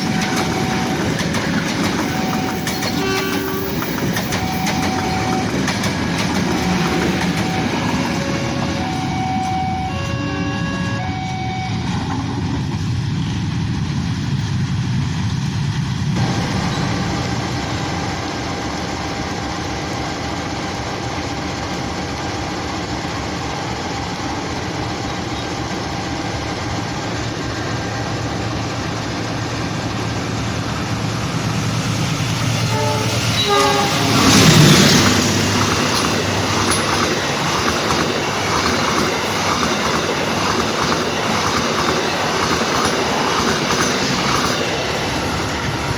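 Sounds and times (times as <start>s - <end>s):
wheels clattering over rail joints: 0.0s - 9.7s, 32.2s - 45.9s
train mechanical hum: 0.0s - 45.9s.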